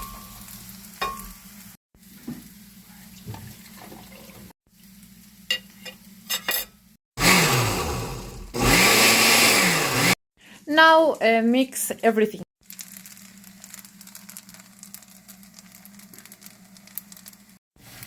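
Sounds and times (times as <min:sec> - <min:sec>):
kitchen blender running: 0:07.2 - 0:10.2.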